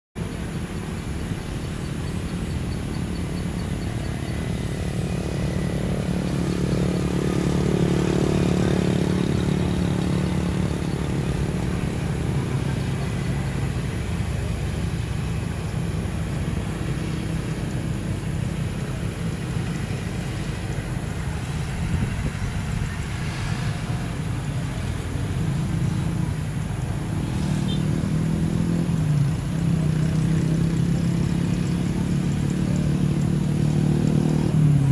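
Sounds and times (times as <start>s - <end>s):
engines running: 0.2s - 34.9s.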